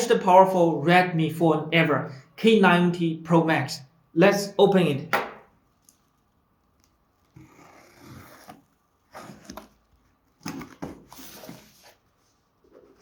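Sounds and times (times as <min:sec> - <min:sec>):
cardboard packaging rustling: 0:08.0 - 0:13.0.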